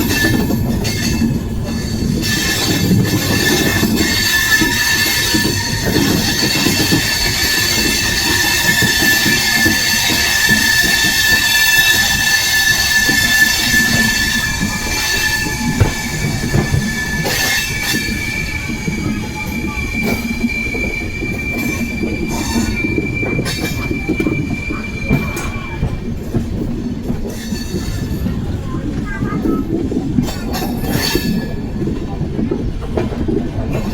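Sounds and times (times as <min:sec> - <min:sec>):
high wheel squeal: 0:00.0 - 0:26.0
knocks of train: 0:00.0 - 0:33.9
train rumbling on rails: 0:00.0 - 0:33.9.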